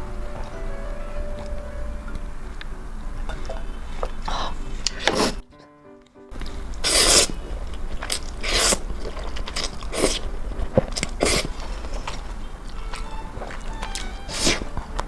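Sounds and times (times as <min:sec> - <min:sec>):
crunchy chewing: 0:06.3 - 0:15.0.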